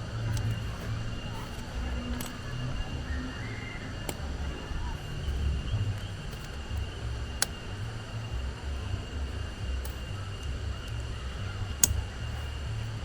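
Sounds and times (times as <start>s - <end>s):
faint steady high tone: 0.0s - 13.0s
wind buffeting microphone: 0.0s - 13.0s
sharp click: 11.8s - 12.2s.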